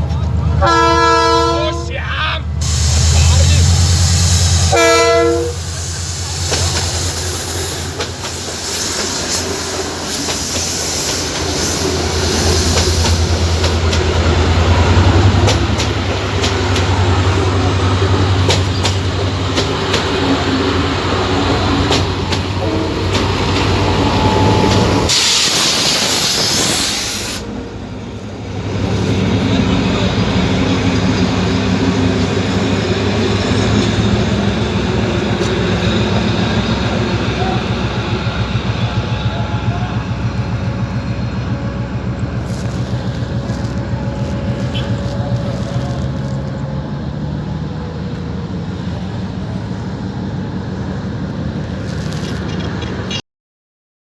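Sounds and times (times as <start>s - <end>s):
train running hum: 0.0s - 53.2s
loud hiss: 2.6s - 14.2s, 23.5s - 27.6s.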